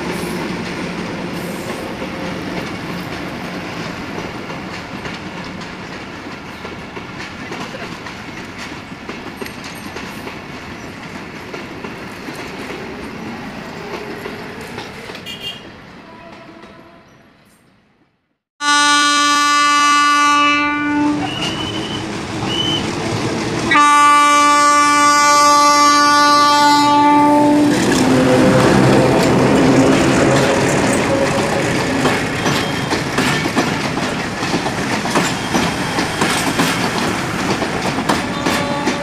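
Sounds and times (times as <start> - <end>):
train coaches rattling past: 0.0 - 17.7, 18.7 - 39.0
locomotive horn: 15.2 - 17.1, 18.6 - 22.8, 23.7 - 32.1, 38.2 - 39.0.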